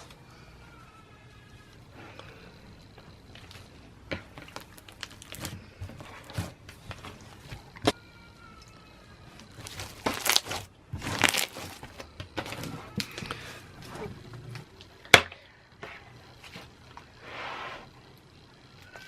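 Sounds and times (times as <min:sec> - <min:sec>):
slime squelching and crackling: 0:02.9 - 0:08.0, 0:09.3 - 0:14.0.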